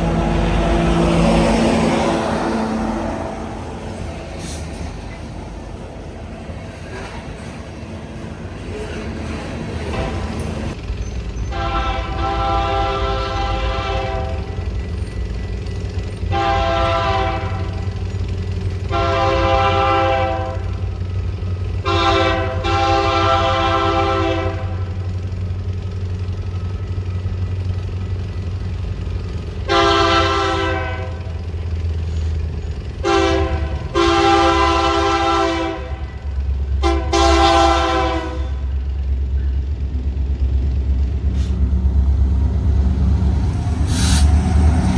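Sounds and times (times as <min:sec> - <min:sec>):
train rumbling: 0:00.0 - 0:44.9
locomotive air horn blasts: 0:11.5 - 0:14.8, 0:16.3 - 0:18.1, 0:18.8 - 0:25.1, 0:29.6 - 0:31.6, 0:33.0 - 0:38.9.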